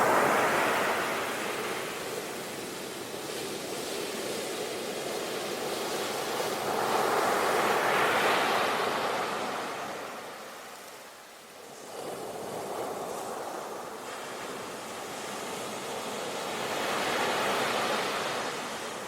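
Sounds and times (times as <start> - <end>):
ocean waves breaking: 0.0 - 3.0.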